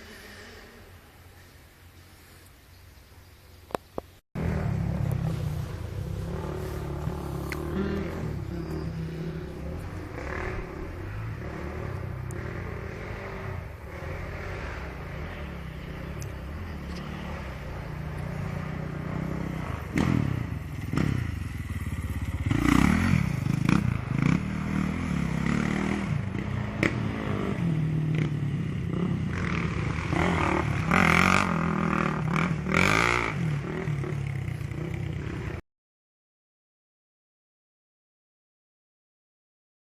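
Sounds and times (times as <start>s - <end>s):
motorcycle engines revving: 4.4s - 35.6s.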